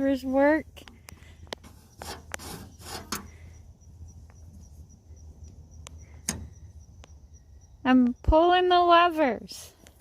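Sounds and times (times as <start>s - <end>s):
metal levers scraping and clicking: 1.9s - 3.4s.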